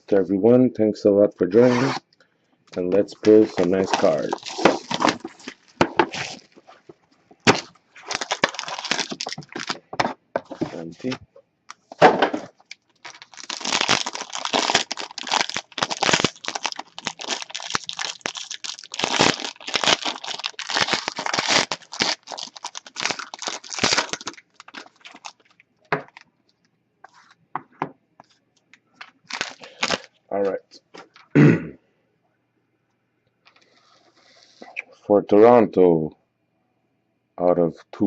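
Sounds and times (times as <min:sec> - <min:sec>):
wrapper tearing and crinkling: 0:03.4 - 0:06.6, 0:07.4 - 0:09.8, 0:12.7 - 0:26.2, 0:29.0 - 0:30.1.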